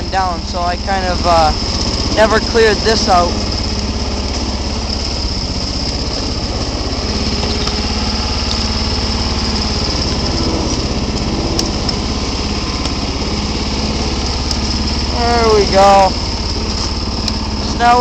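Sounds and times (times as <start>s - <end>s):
garden tractor engine running: 0.0s - 18.0s.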